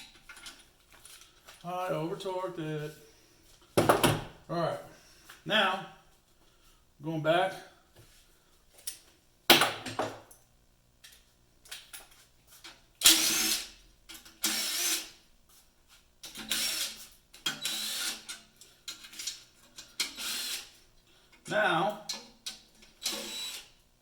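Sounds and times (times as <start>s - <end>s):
hand ratchet clicking: 16.2s - 20.8s.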